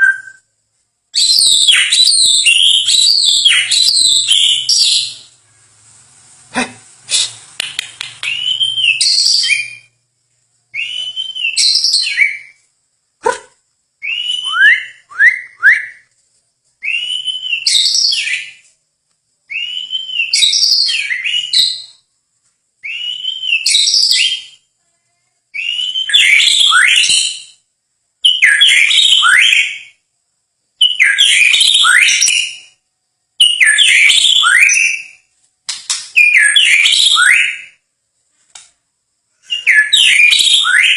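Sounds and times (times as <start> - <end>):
songbird whistling phrase: 0.0 - 0.5, 10.8 - 12.6, 14.0 - 16.1, 16.8 - 18.6, 19.5 - 22.0, 25.6 - 27.6, 36.2 - 37.8, 39.4 - 40.9.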